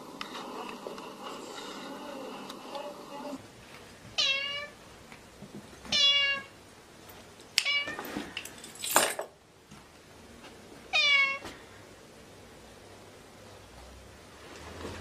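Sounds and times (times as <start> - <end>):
cat meowing: 4.2 - 4.8, 5.9 - 6.5, 10.9 - 11.4.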